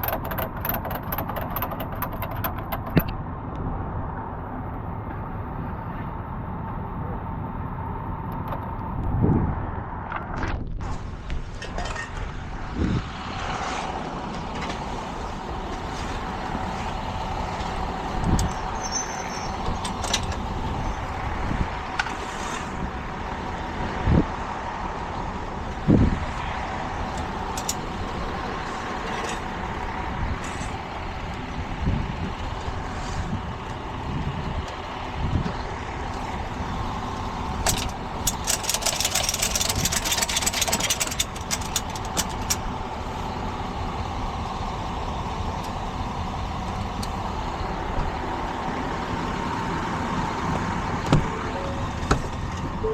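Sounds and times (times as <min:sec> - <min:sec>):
fast even clicking: 0:00.0 - 0:03.1, 0:37.7 - 0:42.6
truck engine whining: 0:00.0 - 0:52.9.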